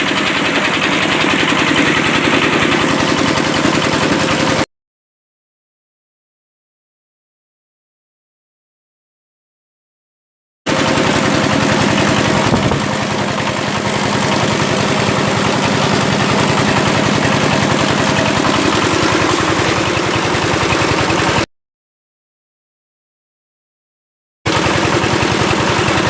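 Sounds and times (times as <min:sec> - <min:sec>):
tiller engine running: 0:00.0 - 0:04.7, 0:10.7 - 0:21.5, 0:24.5 - 0:26.0.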